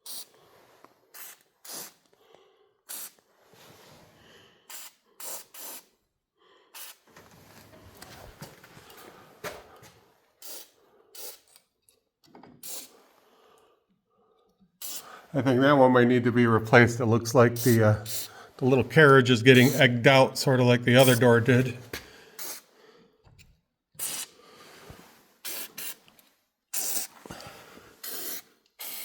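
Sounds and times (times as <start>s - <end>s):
spray can hissing bursts: 0.0s - 0.3s, 1.1s - 2.0s, 2.9s - 3.2s, 4.7s - 5.9s, 6.8s - 7.0s, 10.4s - 11.5s, 12.6s - 12.9s, 14.8s - 15.0s, 17.6s - 18.3s, 19.6s - 19.8s, 22.4s - 22.7s, 24.0s - 24.4s, 25.4s - 26.0s, 26.7s - 27.2s, 28.0s - 29.0s.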